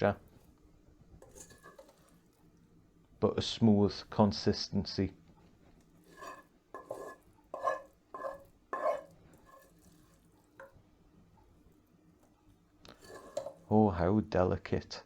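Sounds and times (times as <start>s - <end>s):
utensil scraping in a dish: 1.2s - 2.4s, 6.0s - 10.8s, 12.9s - 13.7s.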